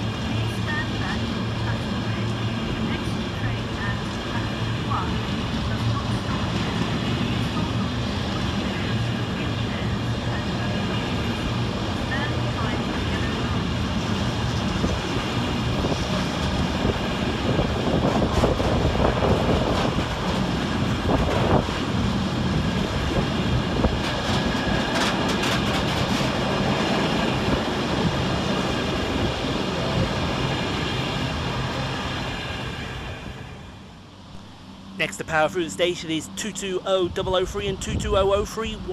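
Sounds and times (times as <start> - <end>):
train wheels clicking over joints: 24.0 - 27.0.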